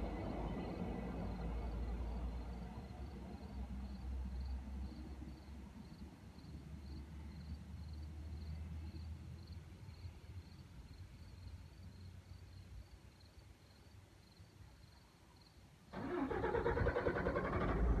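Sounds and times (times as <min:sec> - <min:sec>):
electric train rumbling: 0:00.0 - 0:03.9.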